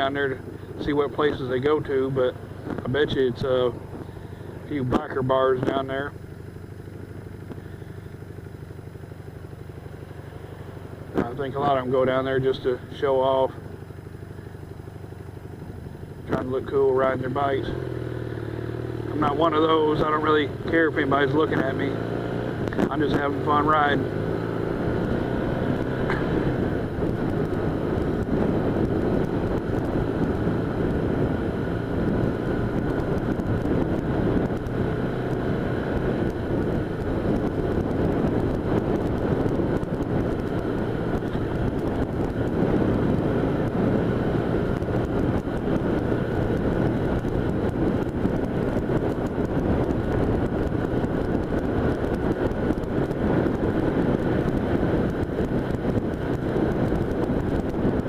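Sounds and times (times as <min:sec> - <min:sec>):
wind rushing over microphone: 0:00.0 - 0:06.1, 0:15.8 - 0:58.0
motorcycle engine cruising: 0:00.0 - 0:58.0.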